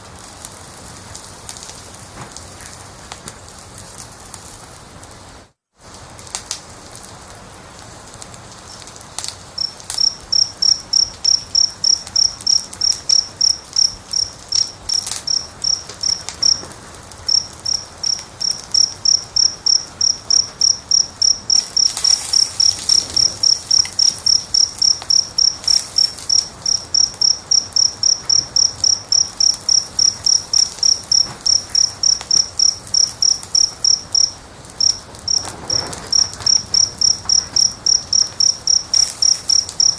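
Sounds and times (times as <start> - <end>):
wood fire crackling: 0.0 - 39.9
cricket chirping: 9.5 - 39.9.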